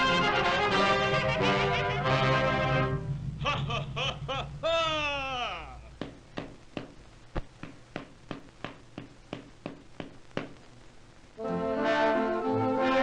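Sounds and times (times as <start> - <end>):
brass band music: 0.0 - 3.2, 11.4 - 13.0.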